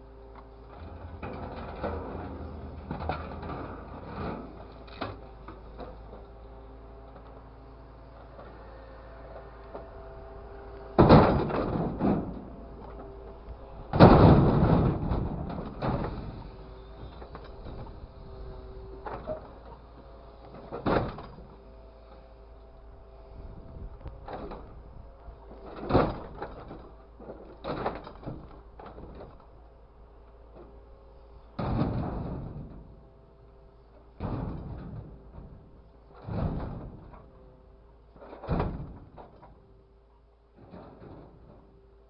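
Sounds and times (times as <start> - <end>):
sharp knocks and bangs: 11.0 - 13.0, 13.9 - 16.3.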